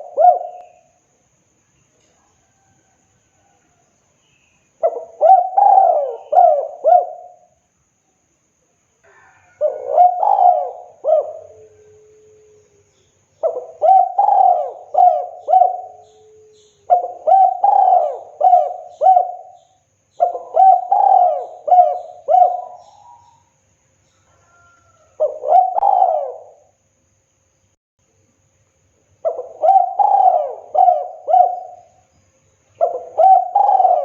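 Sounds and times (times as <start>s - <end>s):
dove cooing: 0.0s - 0.9s, 4.8s - 7.5s, 9.1s - 12.6s, 13.4s - 23.5s, 24.4s - 26.7s, 29.2s - 32.0s, 32.8s - 34.0s.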